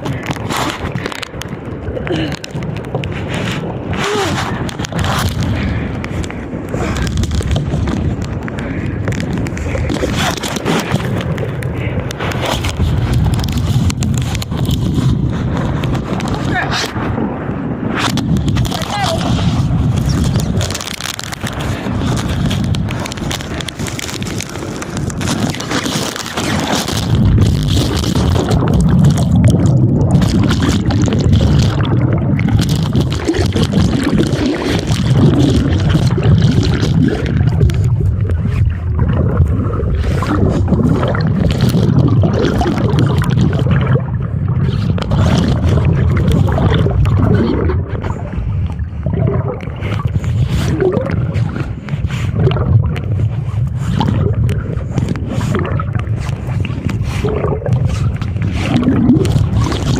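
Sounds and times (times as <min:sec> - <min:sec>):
water sloshing around kayak: 0:00.0 - 0:17.1, 0:17.9 - 0:59.9
wind buffeting microphone: 0:00.0 - 0:59.9.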